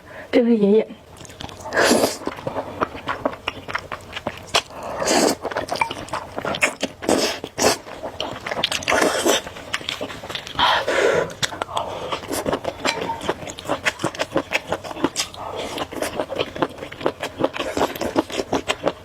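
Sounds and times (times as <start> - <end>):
wet chewing and mouth clicks: 1.1 - 19.0
noodle slurping: 4.5 - 7.9.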